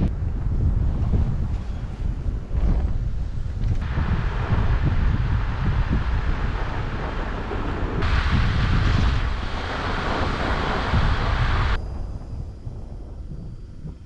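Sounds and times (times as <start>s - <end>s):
wind buffeting microphone: 0.0s - 14.0s
loud hiss: 3.8s - 11.8s.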